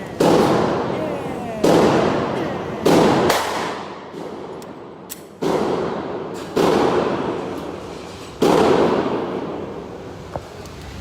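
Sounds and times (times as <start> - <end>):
echoing gunshots: 0.1 - 0.9, 1.6 - 7.8, 8.4 - 9.8.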